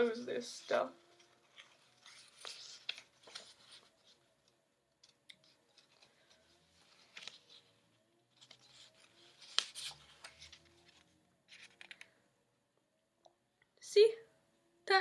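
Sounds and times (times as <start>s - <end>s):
paper and packaging rustling: 0.0s - 4.3s, 5.0s - 12.1s.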